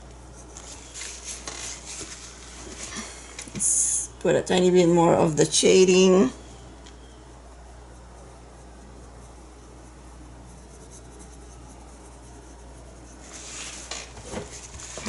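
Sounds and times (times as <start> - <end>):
paintbrush scrubbing paint: 0.0 - 3.9, 6.9 - 15.0
faint electrical hum: 0.0 - 15.0.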